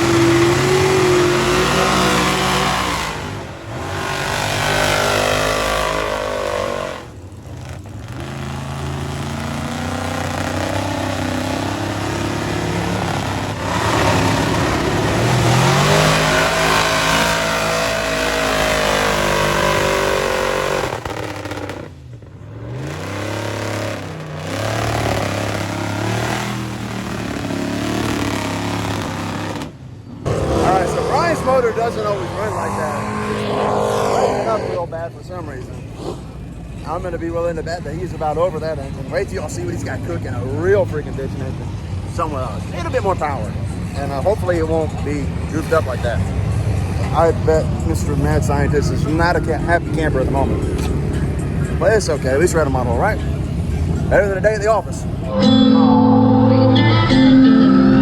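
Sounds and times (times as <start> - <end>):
engine revving hard: 0.0 - 34.9.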